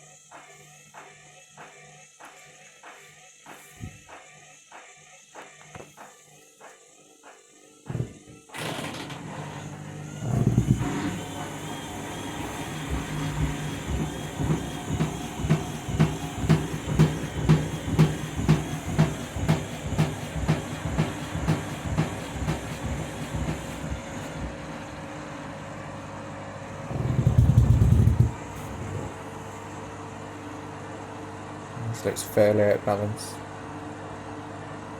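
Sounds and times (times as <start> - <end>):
washing machine motor burst: 8.0 - 25.1, 26.8 - 29.5
washing machine drum thumping: 10.2 - 25.0, 26.9 - 29.1.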